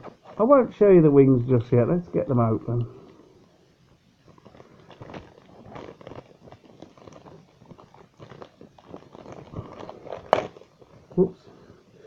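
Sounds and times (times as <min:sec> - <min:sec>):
packaging rustling and crinkling: 0:00.0 - 0:00.8, 0:02.7 - 0:11.4.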